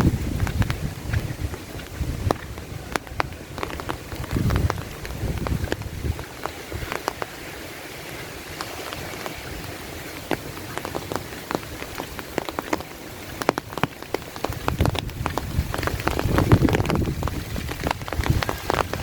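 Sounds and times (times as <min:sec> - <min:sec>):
low rumble: 0:00.0 - 0:06.3
heavy raindrops ticking: 0:00.0 - 0:19.0
steady rain falling: 0:00.0 - 0:19.0.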